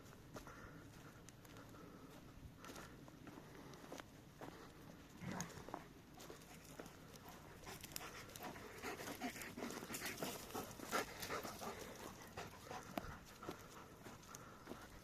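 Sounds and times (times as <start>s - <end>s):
dog panting: 4.4s - 15.0s.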